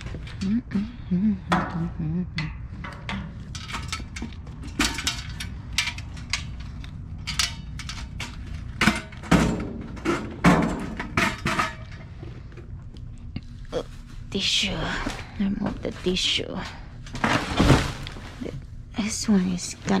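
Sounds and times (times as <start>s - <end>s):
items clicking and knocking: 1.5s - 13.1s.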